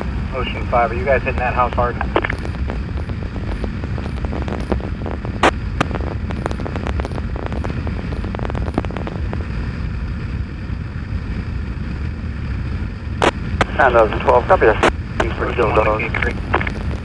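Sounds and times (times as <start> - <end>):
sharp clicks and crackles: 1.2 - 9.6, 13.2 - 13.8, 14.6 - 17.0
wind noise on microphone: 1.4 - 17.0.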